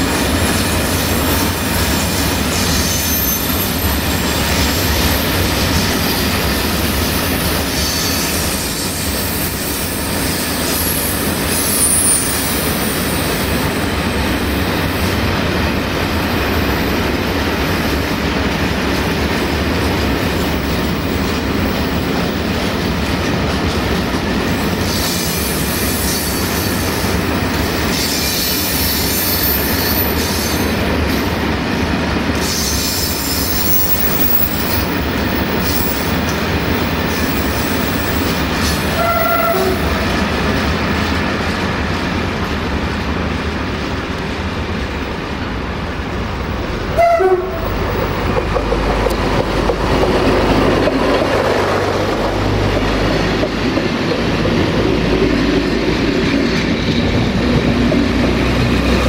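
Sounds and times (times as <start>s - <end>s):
wheels rumbling and clattering on rail: 0.0s - 59.0s
high-pitched wheel squeal: 2.5s - 5.1s, 7.7s - 13.2s.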